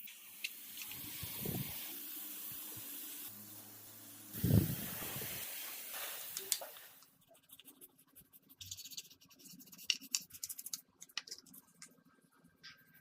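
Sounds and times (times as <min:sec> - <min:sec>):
steady hiss: 0:00.0 - 0:07.7.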